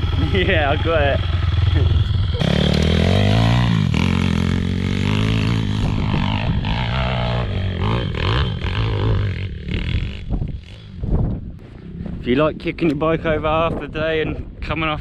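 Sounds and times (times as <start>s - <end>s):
pit bike engine revving: 0.0s - 11.0s.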